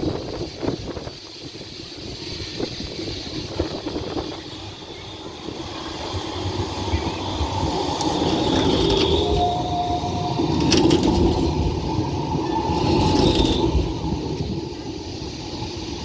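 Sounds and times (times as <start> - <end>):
tram rumbling on rails: 0.0 - 16.0
wind buffeting microphone: 0.0 - 16.0
wheels knocking on track: 6.0 - 14.7.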